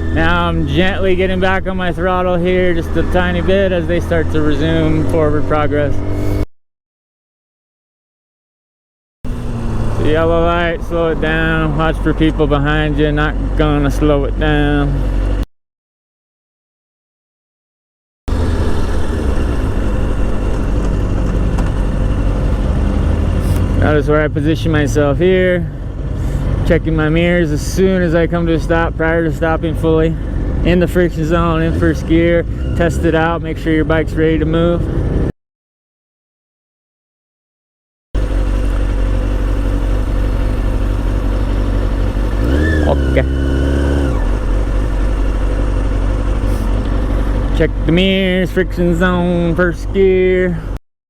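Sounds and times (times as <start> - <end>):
motorcycle engine running: 0.0 - 6.4, 9.3 - 15.4, 18.3 - 35.3, 38.2 - 50.7
wind and road noise: 0.0 - 6.5, 9.2 - 15.4, 18.3 - 35.3, 38.2 - 50.8.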